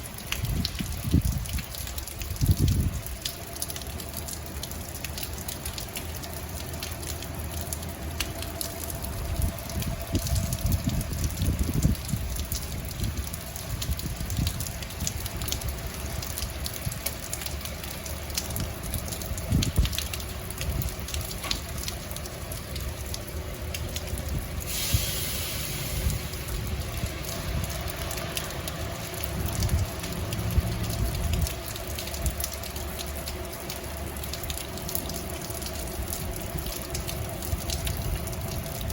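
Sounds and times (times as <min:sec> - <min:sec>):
rain dripping and spattering: 0:00.0 - 0:38.9
brief hiss: 0:24.7 - 0:26.2.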